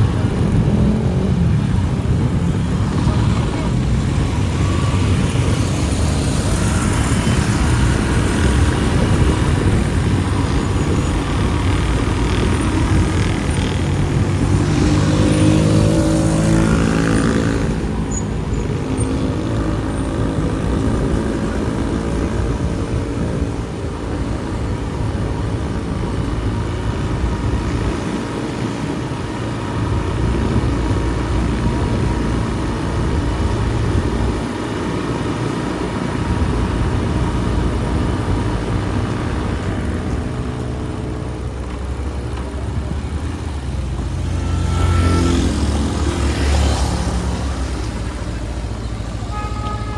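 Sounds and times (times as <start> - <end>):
vehicle engine passing by: 0.0 - 23.4, 42.7 - 49.6
motorbike engine and road rumble: 0.0 - 49.9.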